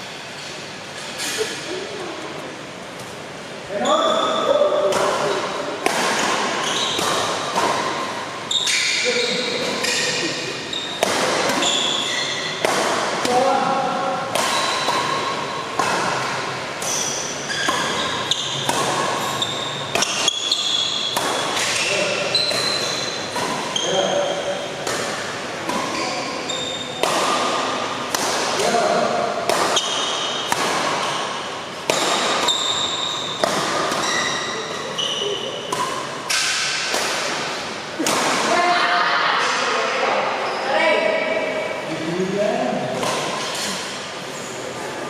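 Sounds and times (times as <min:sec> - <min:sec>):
steady hall noise: 0:00.0 - 0:45.0
racket hitting shuttlecock: 0:04.8 - 0:38.6, 0:42.9 - 0:44.1
shoes squeaking on court: 0:05.2 - 0:12.6, 0:16.8 - 0:24.9, 0:25.7 - 0:27.0, 0:32.2 - 0:36.1, 0:40.4 - 0:40.8.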